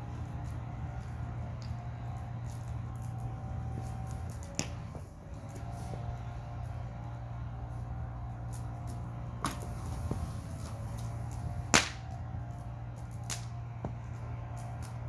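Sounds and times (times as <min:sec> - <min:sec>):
firewood crackling: 0:00.0 - 0:15.0
sharp pops of fire: 0:00.4 - 0:05.6, 0:08.5 - 0:15.0.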